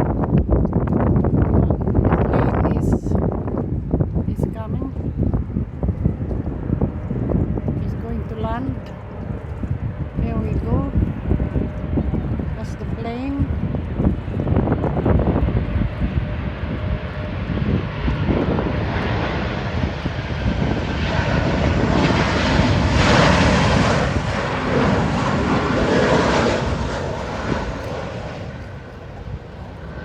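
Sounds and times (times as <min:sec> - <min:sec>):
airliner engine noise: 0:00.0 - 0:30.0.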